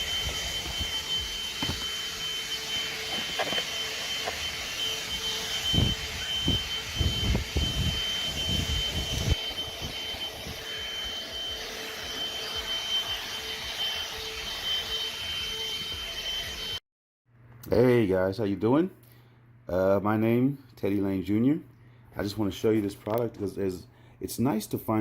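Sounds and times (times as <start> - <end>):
handheld vacuum motor whine: 0.0 - 16.8.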